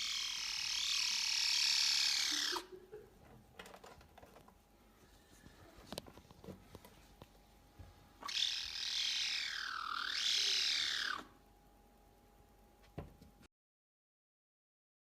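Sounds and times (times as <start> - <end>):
animal screeching call: 0.0 - 2.7, 8.2 - 11.4.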